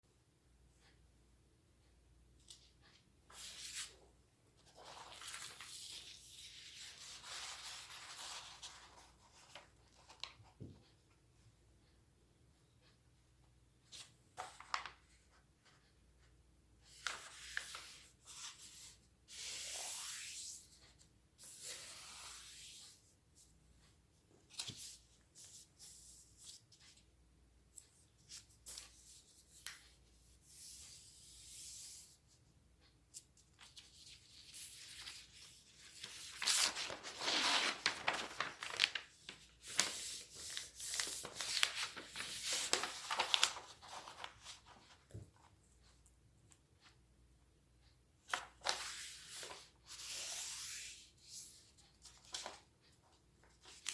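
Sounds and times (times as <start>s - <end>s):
paper swishing and crinkling: 4.6s - 10.4s, 33.6s - 45.2s.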